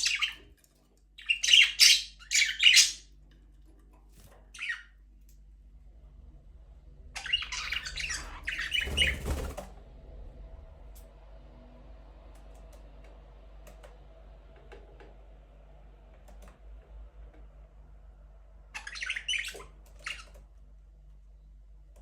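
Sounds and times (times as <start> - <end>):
budgerigars chirping: 0.0 - 0.4, 1.2 - 3.1, 7.2 - 9.4, 18.8 - 20.3
low steady hum: 0.0 - 22.0
harsh chirping squawks: 1.2 - 3.1, 7.2 - 9.4, 18.8 - 20.3.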